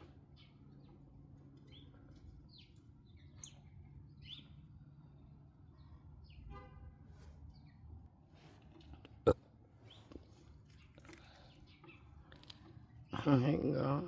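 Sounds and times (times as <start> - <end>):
songbird chirps: 0.0 - 9.1, 9.7 - 14.0
low steady background hum: 0.0 - 14.0.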